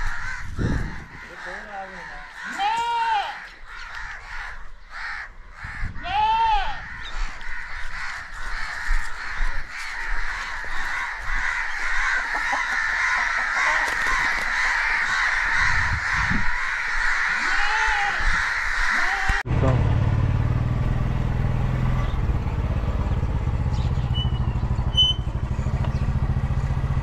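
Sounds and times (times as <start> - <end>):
crow cawing: 0.0 - 19.4.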